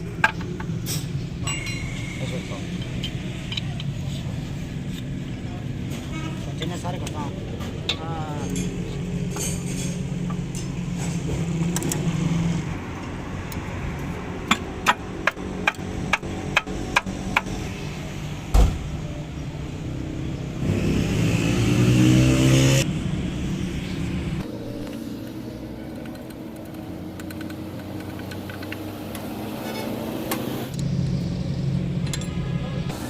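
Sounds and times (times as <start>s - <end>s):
heavy thump: 18.5s - 18.9s.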